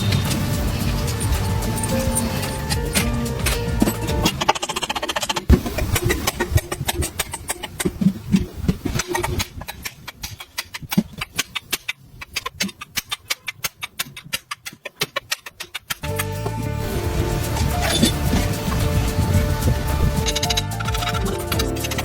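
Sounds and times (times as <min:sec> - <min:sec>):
music: 0:00.0 - 0:04.5, 0:16.0 - 0:22.0.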